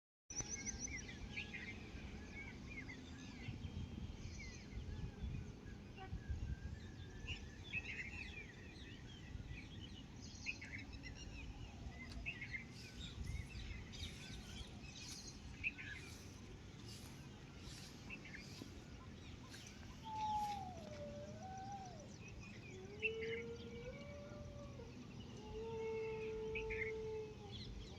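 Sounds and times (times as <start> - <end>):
small birds chirping: 6.9 - 27.9.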